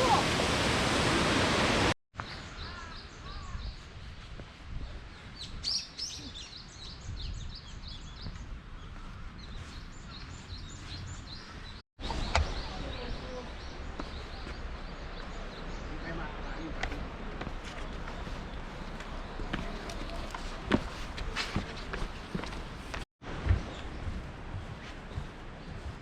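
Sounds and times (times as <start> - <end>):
waterfall rushing: 0.0 - 2.0
low rumble of wind: 0.0 - 26.0
small birds chirping: 2.2 - 20.8, 23.5 - 26.0.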